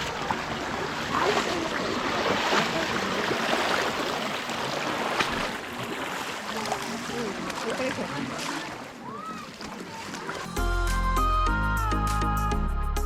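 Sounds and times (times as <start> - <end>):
running water: 0.0 - 10.7
chatter of many people: 6.2 - 10.5.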